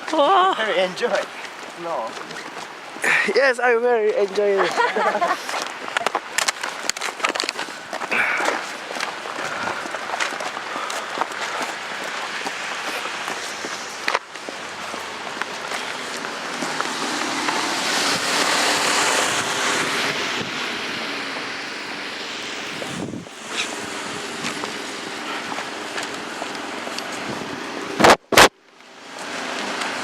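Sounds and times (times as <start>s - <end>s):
wind rushing over microphone: 8.7s - 28.5s.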